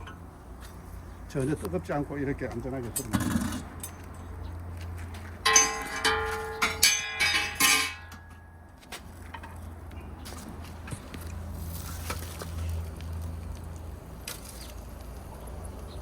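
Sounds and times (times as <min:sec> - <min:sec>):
metal grill parts clanking: 0:05.4 - 0:09.6.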